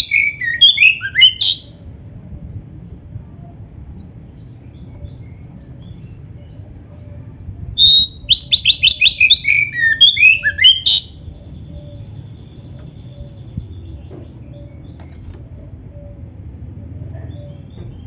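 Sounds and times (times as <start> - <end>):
bird singing: 0.0 - 1.8, 4.3 - 18.0
faint low rumble: 1.6 - 8.6.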